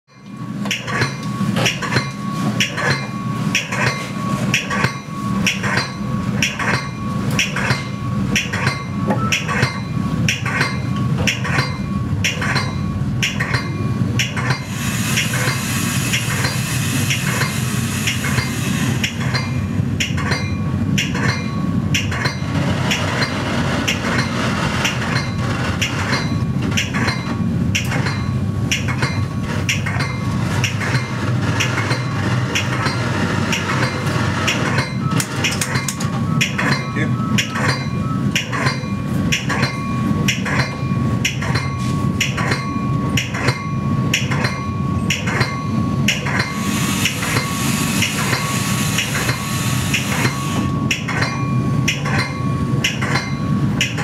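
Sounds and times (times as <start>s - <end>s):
metallic clacks of wheels: 0.1s - 54.0s
train rumbling on rails: 0.1s - 54.0s
hiss: 14.6s - 19.2s, 46.5s - 50.7s.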